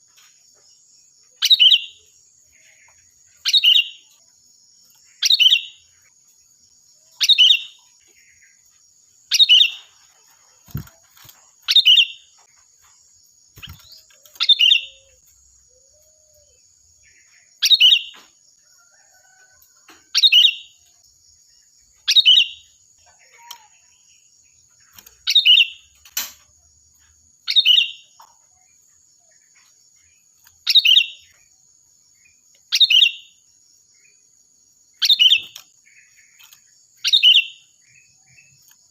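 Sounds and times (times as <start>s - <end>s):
bird giving ringing calls: 13.6s - 16.5s.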